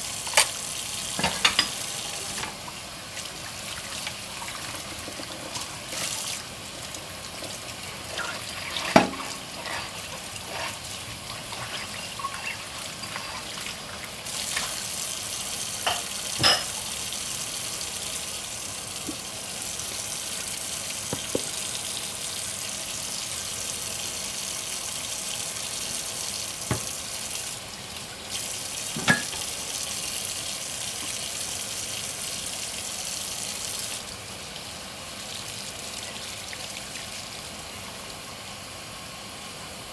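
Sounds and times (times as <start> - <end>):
tap water running into sink: 0.1 - 38.2
dishes clinking: 1.2 - 2.6, 15.8 - 16.8, 29.0 - 29.5.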